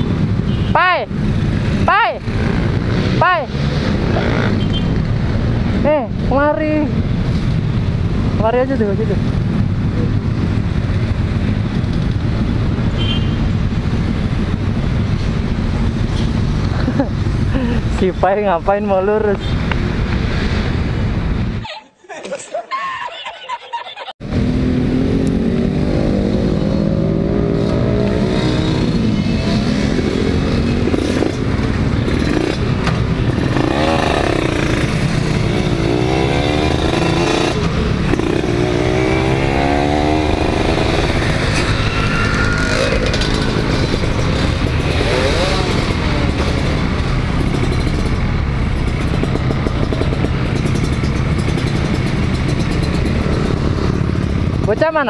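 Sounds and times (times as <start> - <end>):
motorcycle engine revving: 0.0 - 7.8, 24.2 - 55.0
wind and road noise: 0.0 - 21.7, 23.5 - 55.0.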